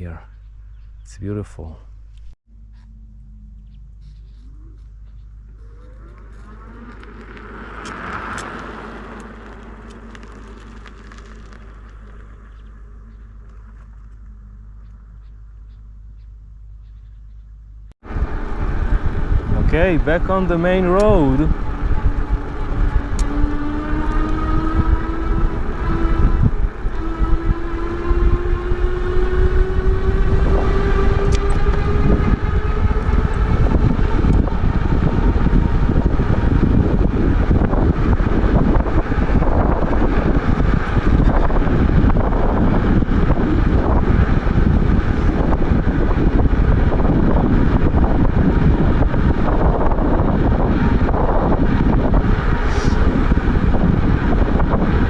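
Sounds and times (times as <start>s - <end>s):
road noise: 0.0s - 55.0s
electric bike motor whining: 2.7s - 15.8s, 18.1s - 55.0s
wind rush on microphone: 18.0s - 55.0s.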